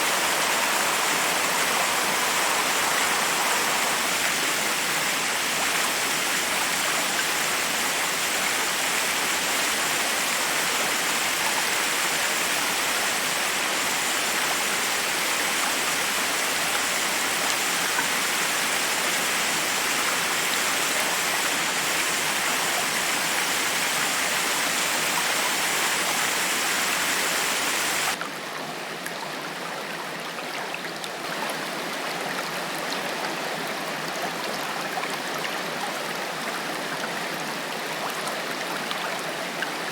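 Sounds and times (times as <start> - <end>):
waterfall rushing over rocks: 0.0 - 28.2.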